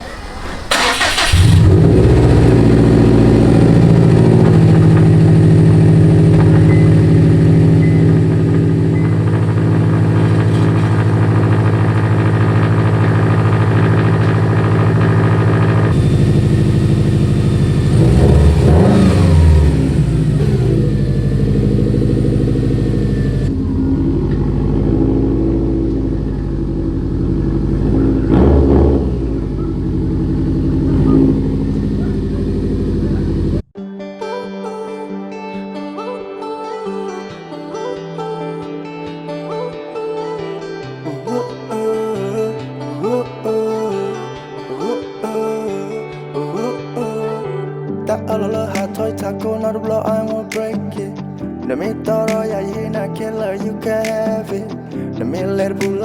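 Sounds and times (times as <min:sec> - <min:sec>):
car engine idling and revving: 0:00.0 - 0:33.7.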